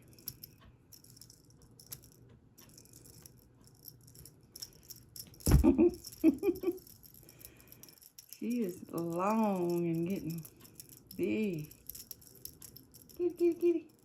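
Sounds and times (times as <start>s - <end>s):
cat toy rattling and jingling: 0.0s - 14.0s
loud thump: 5.4s - 6.0s.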